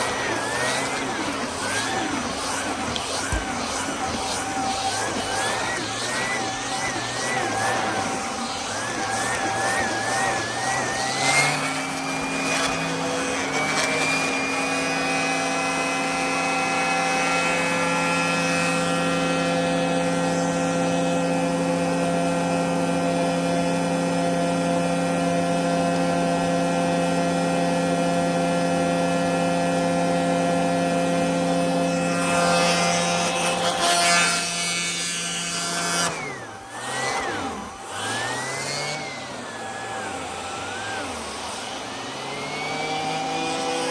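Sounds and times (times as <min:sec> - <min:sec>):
vacuum cleaner motor humming: 0:00.0 - 0:43.9.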